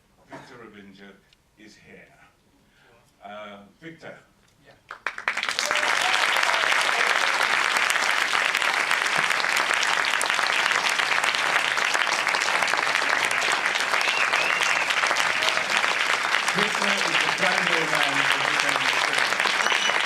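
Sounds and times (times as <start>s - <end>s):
audience applauding: 4.9s - 20.0s.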